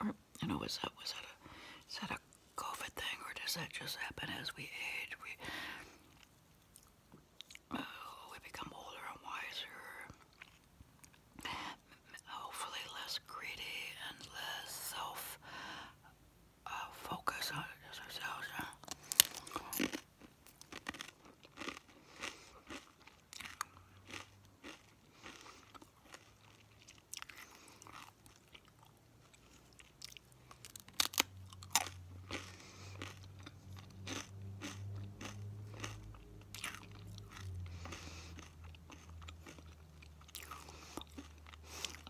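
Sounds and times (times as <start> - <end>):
chewing: 6.0 - 7.7, 10.1 - 11.5, 18.8 - 42.0
crunchy food bites: 18.8 - 42.0.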